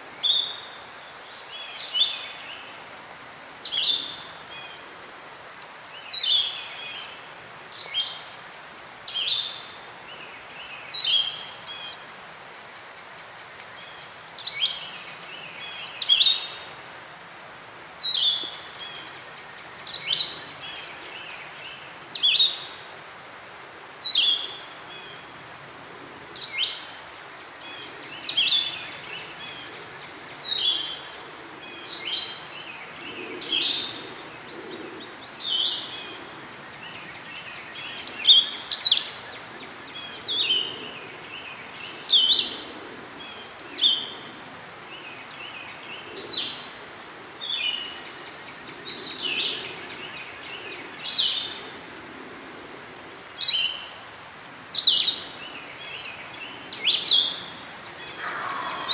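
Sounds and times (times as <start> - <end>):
faint hiss of woods: 0.0 - 58.9
songbird singing sharp phrases: 3.6 - 4.8, 9.1 - 12.0, 18.0 - 22.8, 27.6 - 36.1, 54.7 - 58.9.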